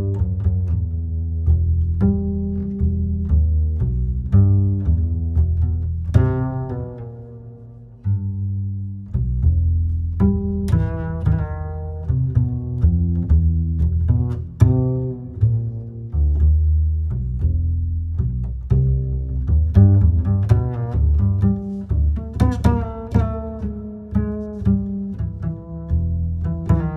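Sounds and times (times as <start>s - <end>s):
deep bass line: 0.0s - 26.9s
slow plucked guitar melody: 9.2s - 26.9s.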